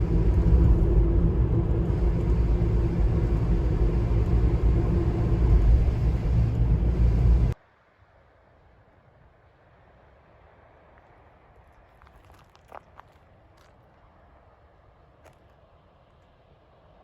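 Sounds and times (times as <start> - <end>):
loud low rumble: 0.0 - 7.6.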